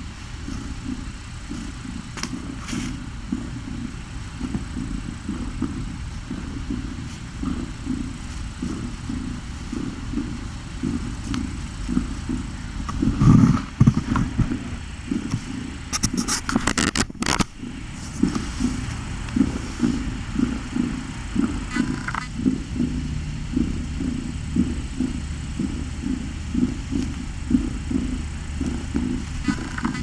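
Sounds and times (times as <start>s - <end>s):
cat purring: 0.1s - 16.6s, 17.6s - 30.0s
scratchy clicks and rustling: 0.4s - 23.0s, 23.6s - 30.0s.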